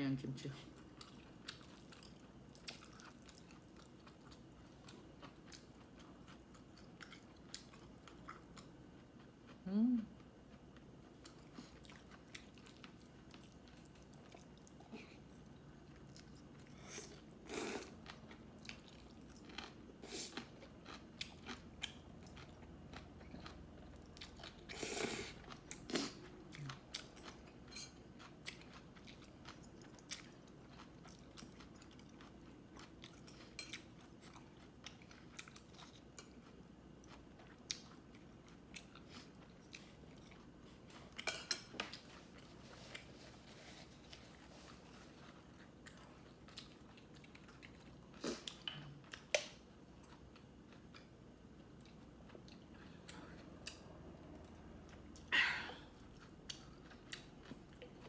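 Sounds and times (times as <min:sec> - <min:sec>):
person chewing food: 0:00.8 - 0:09.6, 0:10.4 - 0:58.0.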